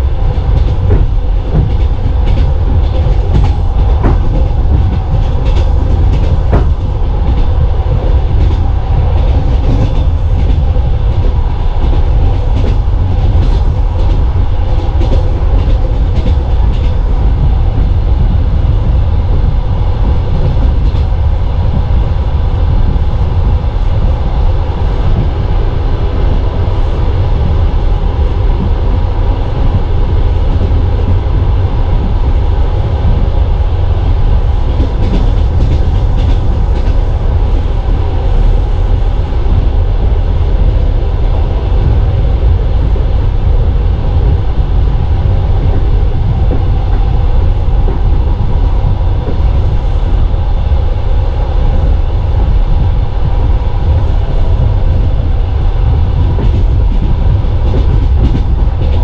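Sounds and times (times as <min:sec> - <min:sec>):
passing train alongside: 0:00.0 - 0:59.0
train wheels rumbling on rails: 0:00.0 - 0:59.0.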